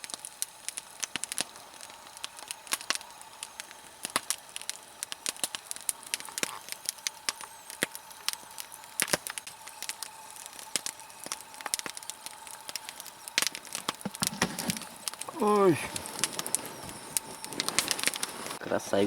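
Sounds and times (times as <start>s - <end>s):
campfire crackling and popping: 0.0s - 19.0s
low hiss of burning: 0.0s - 19.0s.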